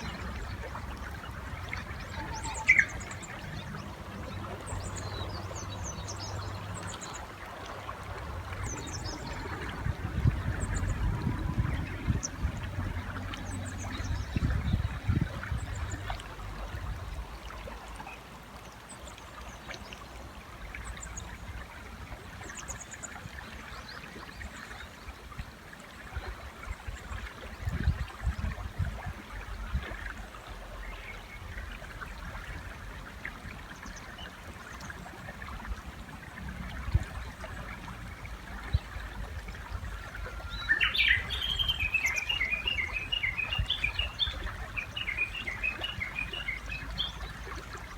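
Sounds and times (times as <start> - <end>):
river water running: 0.0 - 47.9
bush warbler song: 1.2 - 7.2, 40.0 - 47.9
distant bird chirps: 2.0 - 3.4.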